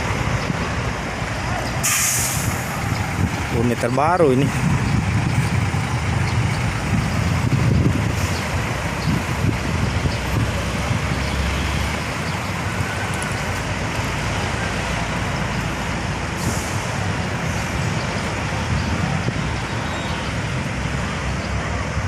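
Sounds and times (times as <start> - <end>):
bus engines and traffic rumble: 0.0 - 22.0
short hiss: 1.8 - 2.7.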